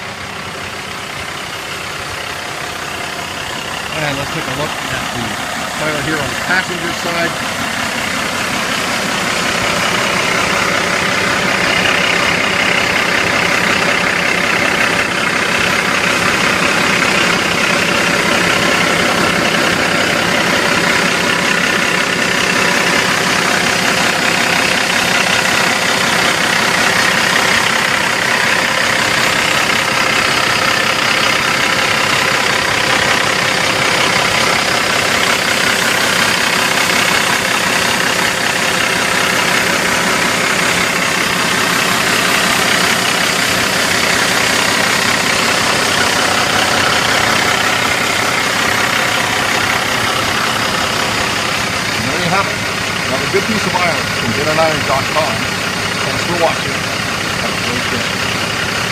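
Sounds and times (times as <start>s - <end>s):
diesel truck engine idling: 0.0s - 58.9s.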